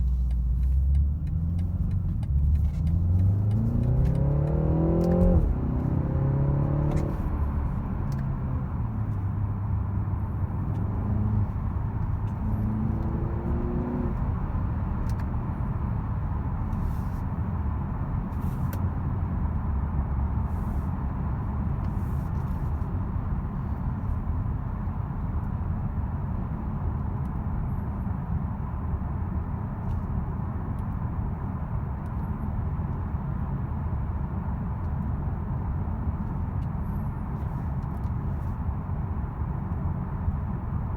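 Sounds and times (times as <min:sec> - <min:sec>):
car engine accelerating: 0:00.0 - 0:18.4
road and tyre rumble: 0:00.0 - 0:40.9.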